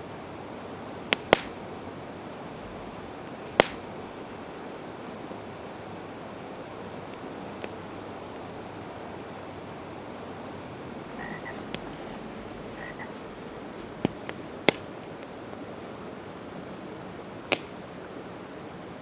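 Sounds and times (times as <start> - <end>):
campfire hissing and popping: 0.1 - 18.0
high chirping: 2.8 - 11.7.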